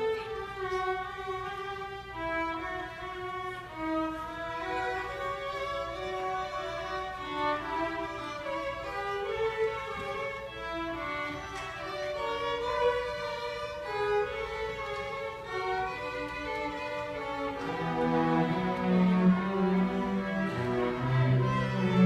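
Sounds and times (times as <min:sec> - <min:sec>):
violins playing melody: 0:00.0 - 0:22.0
lower strings playing: 0:14.8 - 0:22.0.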